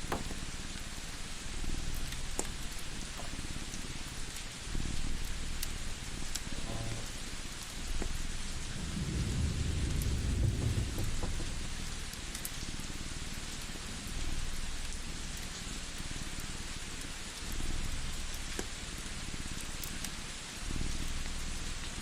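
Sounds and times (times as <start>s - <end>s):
distant thunder rumble: 0.0s - 12.3s
steady rain hiss: 0.0s - 22.0s
wood fire crackles: 0.0s - 22.0s.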